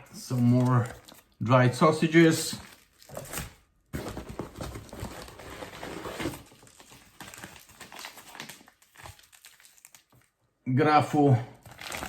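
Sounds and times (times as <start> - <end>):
plastic packaging crinkling: 0.2 - 1.5, 2.5 - 10.4, 11.6 - 12.0.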